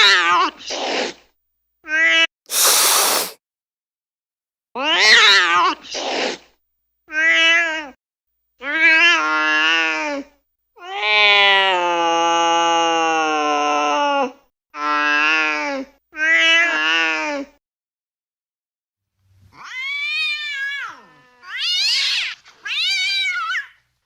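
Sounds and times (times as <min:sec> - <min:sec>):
cat hissing: 0:02.5 - 0:03.4
cat meowing: 0:19.6 - 0:23.8
cat yowling: 0:19.6 - 0:23.8.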